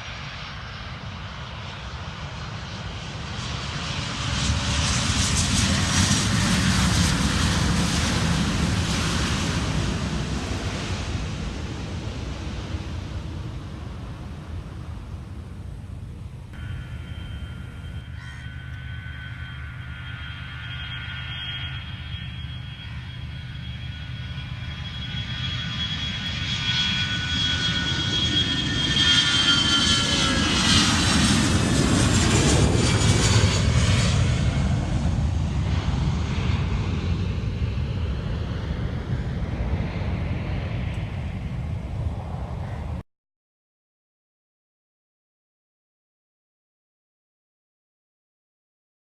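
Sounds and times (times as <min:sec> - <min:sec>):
jet airliner passing: 0:00.0 - 0:43.0.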